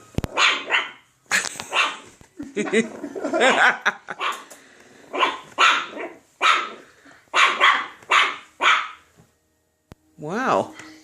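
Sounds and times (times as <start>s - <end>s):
puppy barking: 0.3s - 1.1s, 1.7s - 2.1s, 4.1s - 4.5s, 5.1s - 9.1s.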